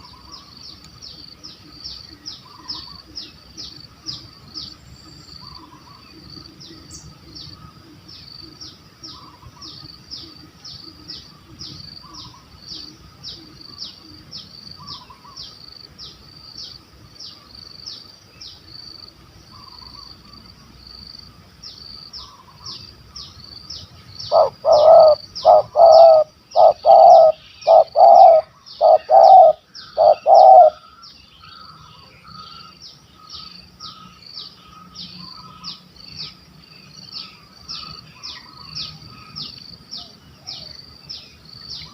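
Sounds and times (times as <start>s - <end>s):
dove cooing: 24.2s - 30.9s.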